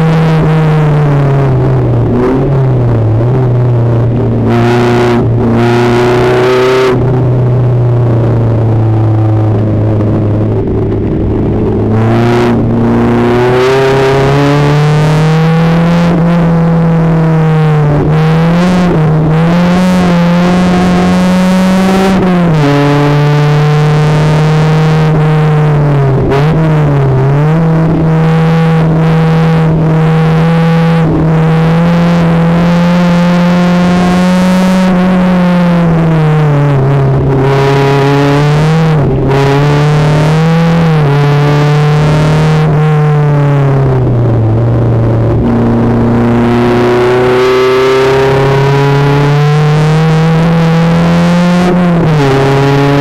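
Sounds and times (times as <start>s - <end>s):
race car engine at high revs: 0.0s - 53.0s.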